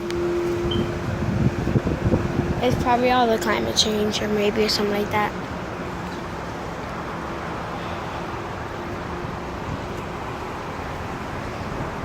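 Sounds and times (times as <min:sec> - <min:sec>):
strong wind rushing: 0:00.6 - 0:03.4.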